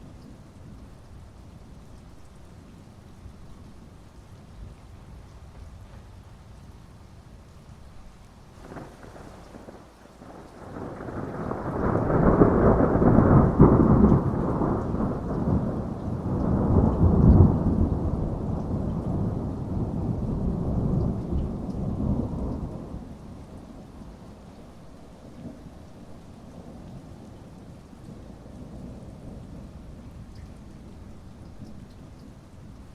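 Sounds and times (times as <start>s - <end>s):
steady rain: 0.0s - 32.9s
thunder rumbling: 8.6s - 24.3s.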